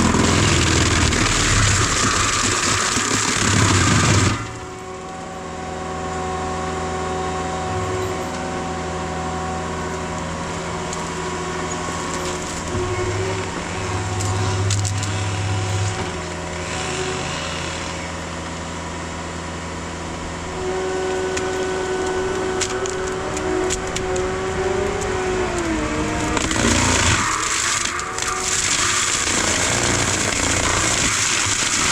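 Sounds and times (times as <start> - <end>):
wood cracking and snapping: 0.0 - 4.6, 10.9 - 17.1, 21.4 - 24.3, 25.0 - 31.9
diesel engine under load: 0.0 - 31.9.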